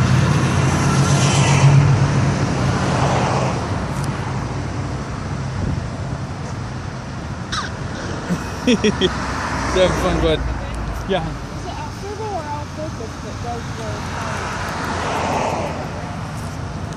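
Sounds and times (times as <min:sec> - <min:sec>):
car engine passing by: 0:00.0 - 0:04.6, 0:07.9 - 0:16.8.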